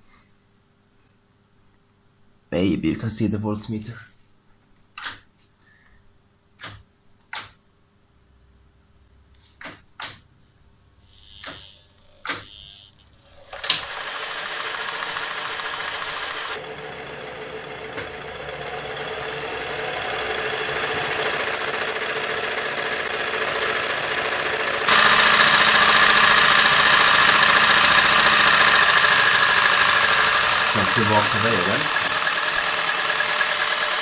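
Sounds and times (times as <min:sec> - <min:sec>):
sewing machine motor running: 0:11.1 - 0:34.0.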